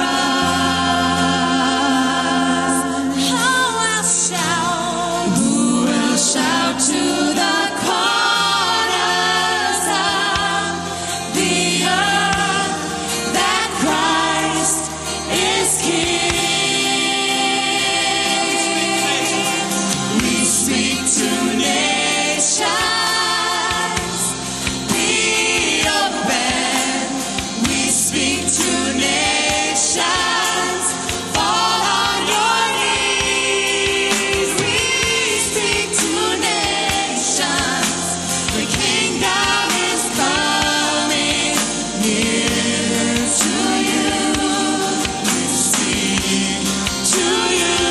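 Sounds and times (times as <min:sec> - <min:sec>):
voices singing together: 0:00.0 - 0:47.9
worship band with drums: 0:00.0 - 0:47.9.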